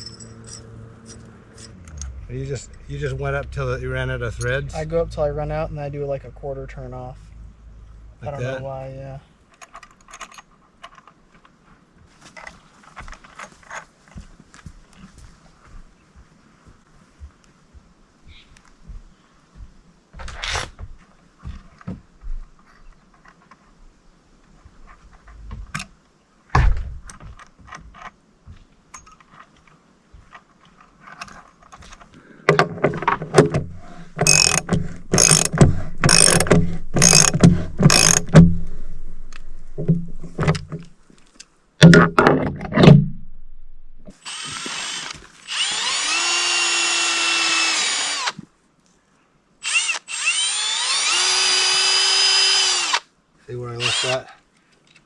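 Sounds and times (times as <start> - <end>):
knocks: 32.5 - 38.8, 39.4 - 41.0, 41.8 - 43.3
cordless power drill whining: 33.8 - 38.4, 44.2 - 48.4, 49.6 - 53.0, 53.8 - 54.2
rapid ratchet-like clicks: 34.2 - 38.4.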